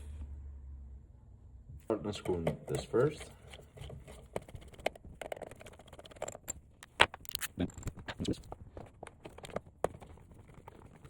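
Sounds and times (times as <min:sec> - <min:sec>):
hand tool clicking and scraping: 0:05.3 - 0:11.0.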